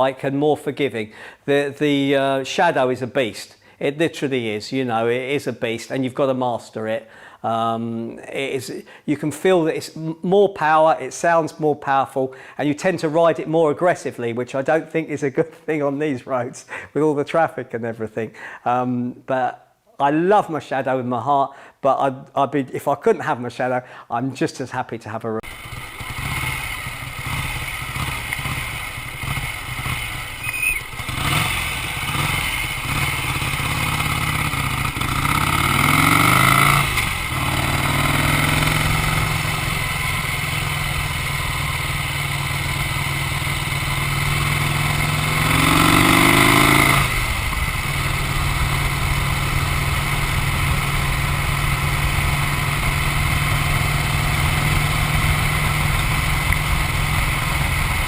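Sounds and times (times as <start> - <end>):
motorcycle engine accelerating: 25.4 - 58.0.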